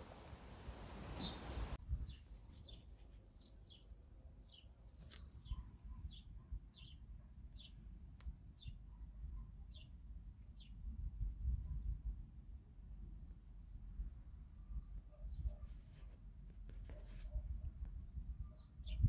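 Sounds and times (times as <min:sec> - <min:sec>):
small bird chirping: 0:01.1 - 0:07.8, 0:18.4 - 0:19.0.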